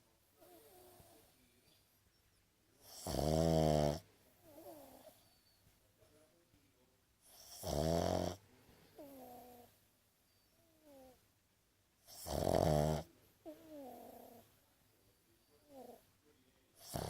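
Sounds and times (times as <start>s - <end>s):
dog snoring: 2.8s - 5.2s, 7.3s - 8.4s, 9.0s - 9.7s, 10.7s - 11.2s, 12.0s - 14.5s, 15.6s - 16.0s, 16.8s - 17.0s.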